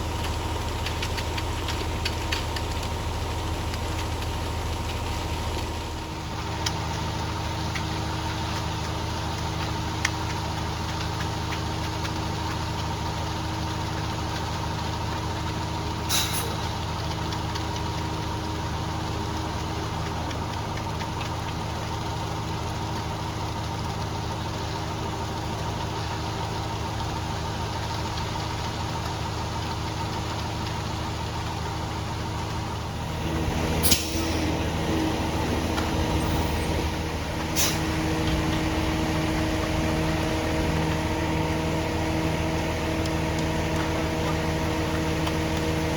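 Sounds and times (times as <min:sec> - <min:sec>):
engine running steadily: 0:00.0 - 0:45.9
short hiss: 0:16.1 - 0:16.6.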